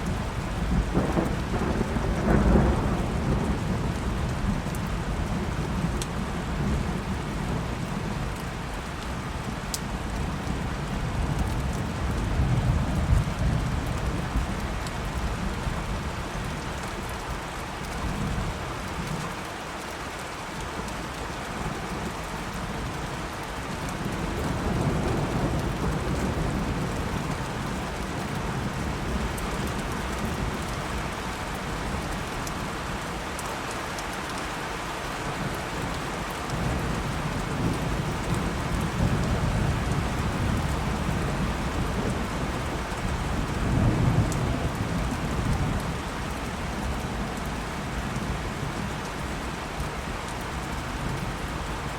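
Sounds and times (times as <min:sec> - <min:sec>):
thunder rumbling: 0:00.0 - 0:07.6
steady rain falling: 0:00.0 - 0:51.9.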